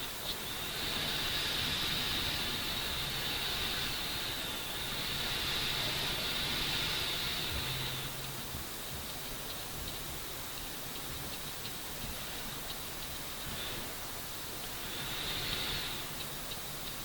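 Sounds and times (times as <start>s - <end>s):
faint low hum: 0.0s - 17.0s
steady hiss: 0.0s - 17.0s.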